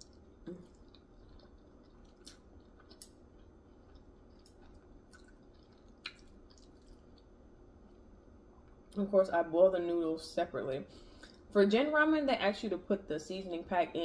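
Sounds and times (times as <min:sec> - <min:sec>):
faint chewing and mouth sounds: 0:00.0 - 0:09.1, 0:10.9 - 0:11.6.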